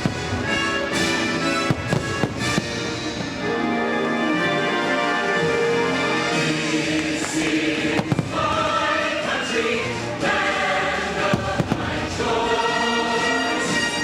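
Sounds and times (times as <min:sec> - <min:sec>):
firework bangs: 0:01.5 - 0:03.1, 0:07.9 - 0:08.8, 0:11.3 - 0:12.2
choir singing with orchestra: 0:02.2 - 0:14.0.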